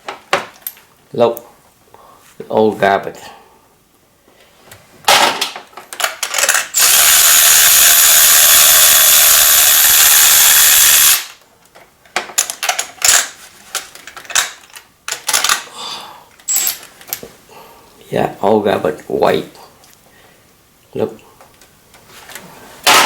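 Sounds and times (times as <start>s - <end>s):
tools clicking and clattering: 5.1s - 6.8s, 11.7s - 15.7s, 16.4s - 17.3s
shop tool whirring: 6.4s - 11.4s.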